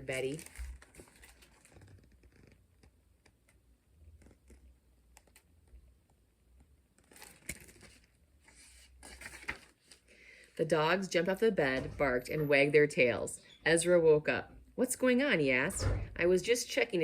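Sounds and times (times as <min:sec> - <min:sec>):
book pages rustling: 0:00.2 - 0:10.6.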